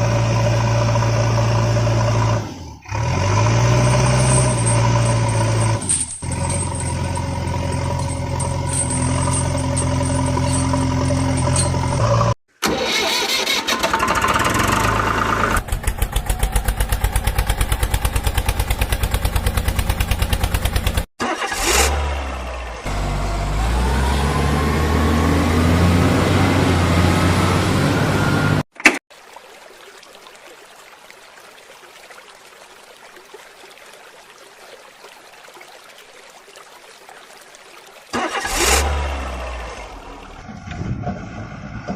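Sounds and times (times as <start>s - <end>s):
engine running: 0.0s - 12.9s, 13.6s - 29.0s
engine revving: 0.0s - 28.7s, 38.2s - 41.9s.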